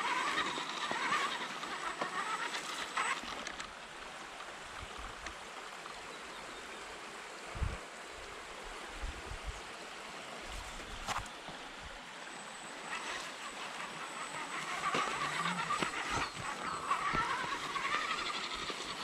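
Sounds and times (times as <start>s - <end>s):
electric motor whine: 0.0s - 3.7s, 10.6s - 19.0s
stream water running: 0.0s - 19.0s.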